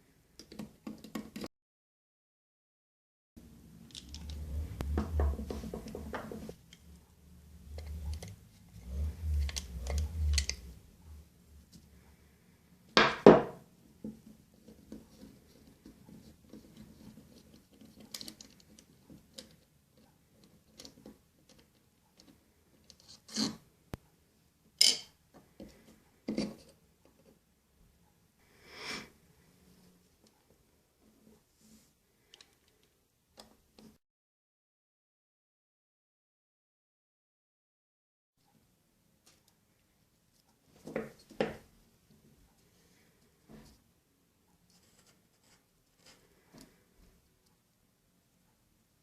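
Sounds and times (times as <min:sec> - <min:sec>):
low handling rumble: 0:03.9 - 0:11.8.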